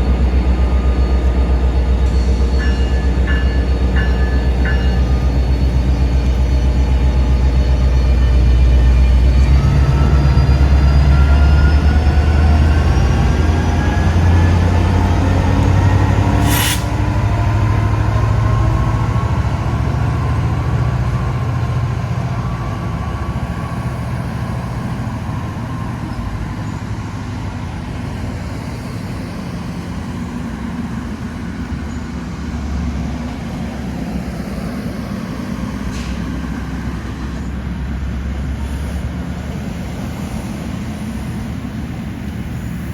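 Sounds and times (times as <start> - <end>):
rising tones of train motors: 0.0 - 42.9
train rumbling pulling away: 0.0 - 42.9
sharp air hiss: 16.4 - 17.1.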